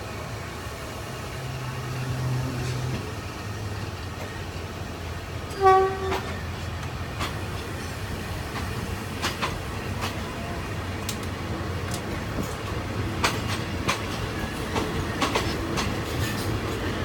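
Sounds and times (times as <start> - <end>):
locomotive horn toot: 5.5 - 6.3.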